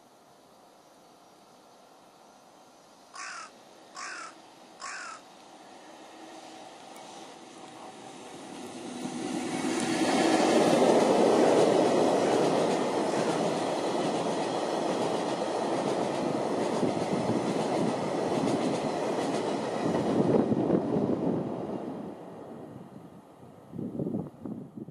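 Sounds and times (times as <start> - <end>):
freight train passing: 0.6 - 24.9
wheels clicking on rails: 6.7 - 20.3.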